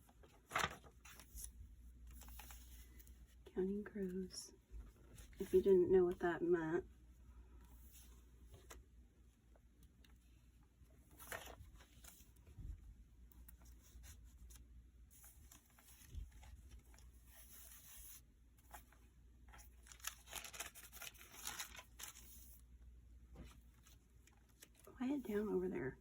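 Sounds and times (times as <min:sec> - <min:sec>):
paper pages rustling: 0:00.0 - 0:03.4, 0:11.0 - 0:12.5, 0:13.4 - 0:22.7.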